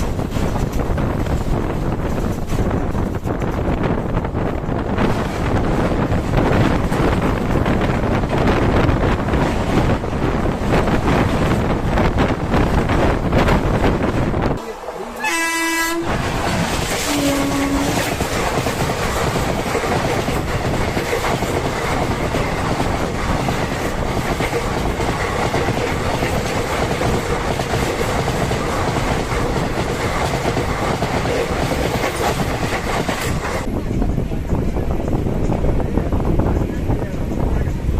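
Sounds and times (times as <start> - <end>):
wheels clattering over rail joints: 0.0 - 15.2
electric train running: 0.0 - 37.9
train horn note: 14.6 - 16.2, 17.0 - 18.2.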